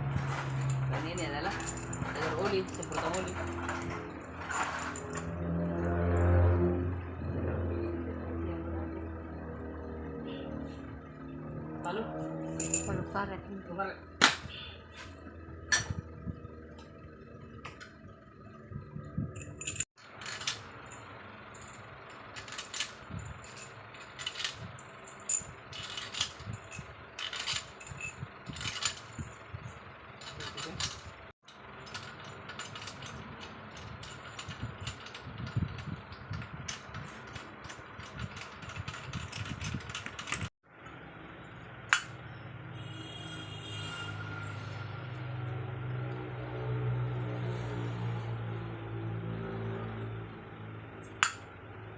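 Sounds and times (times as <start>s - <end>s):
metal tools clinking: 0.0s - 7.6s, 12.1s - 13.4s, 14.9s - 40.5s, 41.9s - 42.2s, 51.0s - 51.5s.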